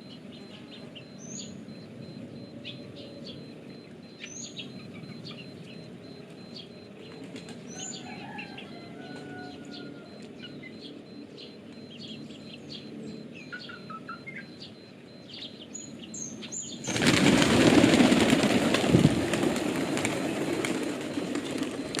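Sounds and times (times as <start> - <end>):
small birds chirping: 0.0 - 22.0
pigeon wings flapping: 16.9 - 22.0.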